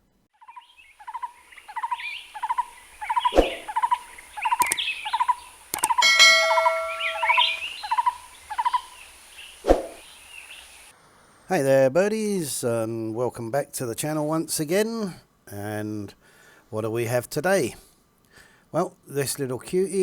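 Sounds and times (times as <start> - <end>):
bird chirping: 0.4 - 10.9
sharp clicks: 4.6 - 4.8, 5.7 - 6.0
brief ringing tone: 6.0 - 7.6.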